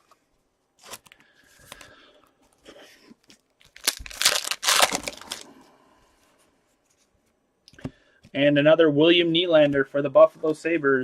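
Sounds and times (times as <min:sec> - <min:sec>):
wrapper tearing and crinkling: 0:03.7 - 0:05.5.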